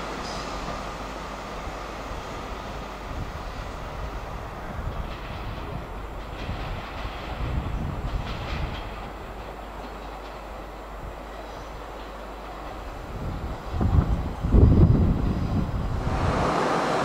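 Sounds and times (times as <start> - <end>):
train rumbling along track: 0.0 - 17.0
wheels clicking over rail joints: 4.6 - 15.2.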